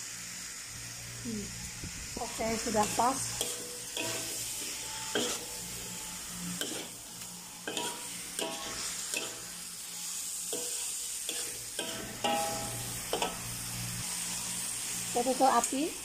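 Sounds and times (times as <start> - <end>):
food sizzling in a wok: 0.0 - 16.0
metal spatula scraping wok: 2.2 - 15.8
spatula clanking against wok: 2.8 - 5.6, 6.6 - 6.9, 7.6 - 9.6, 10.5 - 13.4.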